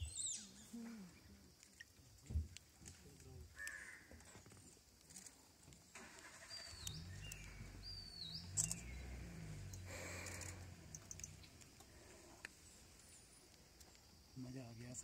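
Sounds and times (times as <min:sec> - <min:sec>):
whistled bird calls: 0:00.0 - 0:00.7, 0:06.4 - 0:09.1
small birds chirping: 0:00.0 - 0:15.0
sharp click: 0:08.6 - 0:08.9.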